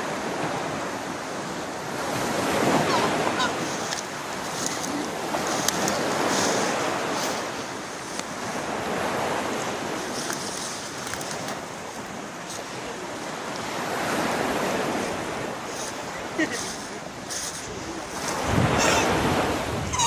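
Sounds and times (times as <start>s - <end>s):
waterfall roaring: 2.6s - 7.4s.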